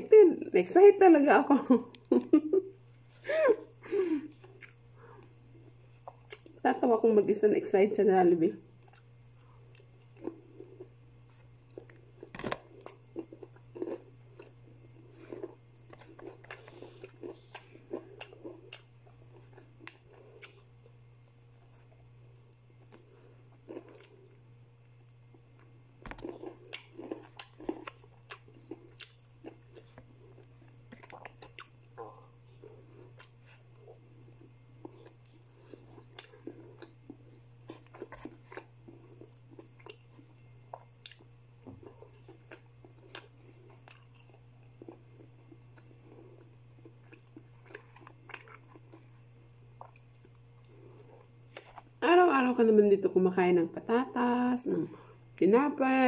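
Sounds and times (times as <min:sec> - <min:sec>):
person chewing crispy chicken: 0:04.2 - 0:06.6, 0:08.6 - 0:51.9.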